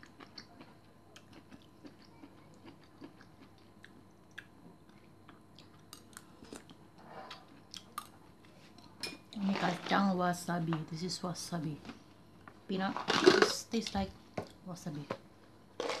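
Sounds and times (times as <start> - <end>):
soft chewing: 0.0 - 9.4.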